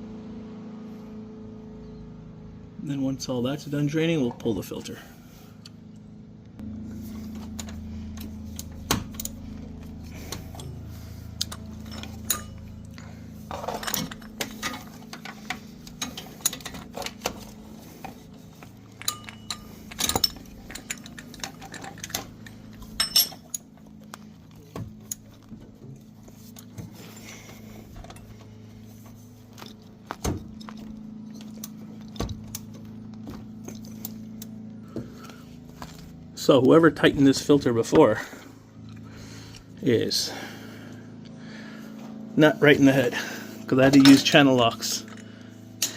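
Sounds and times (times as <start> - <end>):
steady low hum: 0.0 - 45.9
metal hand tools clinking: 7.6 - 25.5, 43.7 - 45.9.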